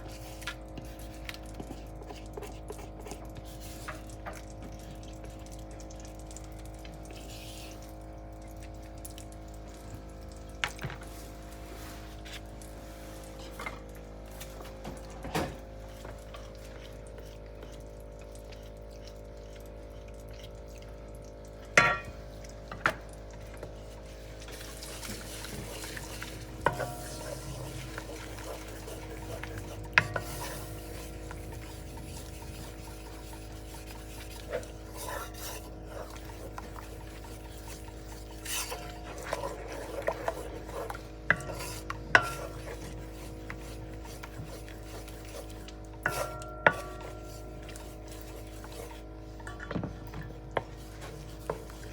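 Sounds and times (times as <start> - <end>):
spoon stirring and scraping in pot: 0.0 - 6.0, 10.8 - 51.9
steady hum: 15.4 - 51.9.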